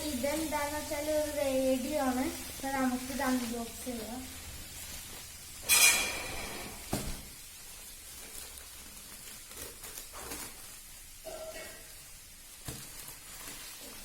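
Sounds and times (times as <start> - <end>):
packaging rustling: 0.0 - 5.7, 6.5 - 11.2, 11.9 - 14.0.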